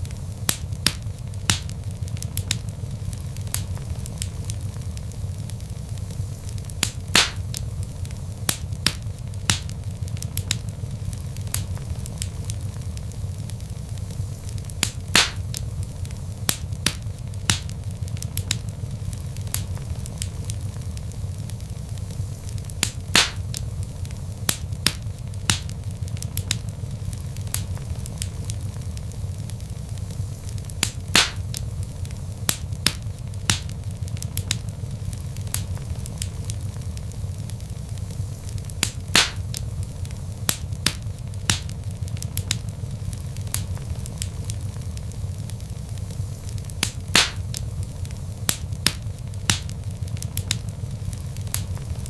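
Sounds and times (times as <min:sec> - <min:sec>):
log fire crackling: 0:00.0 - 0:52.0
loud fire pop: 0:06.8 - 0:07.6, 0:14.8 - 0:15.6, 0:16.5 - 0:17.7, 0:22.8 - 0:23.6, 0:24.5 - 0:25.7, 0:30.8 - 0:31.6, 0:32.5 - 0:33.8, 0:38.8 - 0:39.6, 0:40.5 - 0:41.8, 0:46.8 - 0:47.6, 0:48.5 - 0:49.8.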